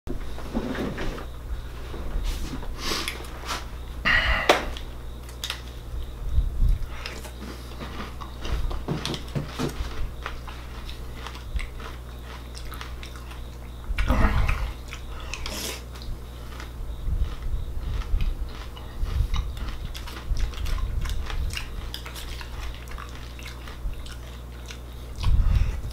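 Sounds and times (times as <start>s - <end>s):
steady low hum: 0.1s - 25.9s
cereal crunching while chewed: 4.8s - 6.1s, 6.8s - 25.9s.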